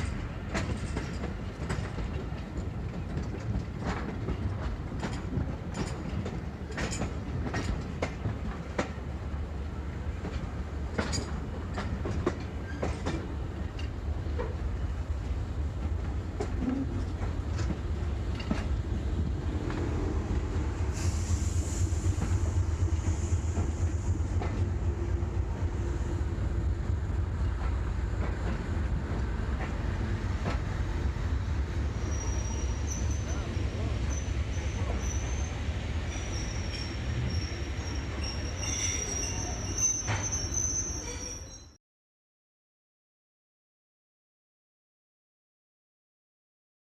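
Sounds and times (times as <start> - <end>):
steam train rumbling: 0.0 - 41.6
high steam hiss: 19.4 - 26.6
high thin squeal: 32.0 - 33.4, 34.1 - 41.8.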